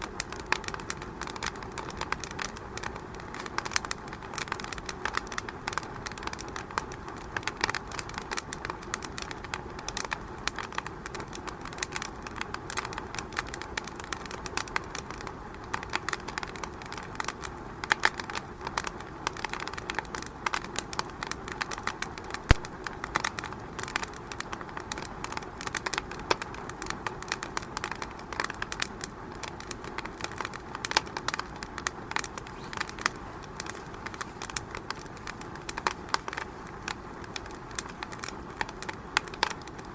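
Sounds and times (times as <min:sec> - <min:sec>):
fireplace fire crackling: 0:00.0 - 0:39.9
sharp pops: 0:21.3 - 0:39.8.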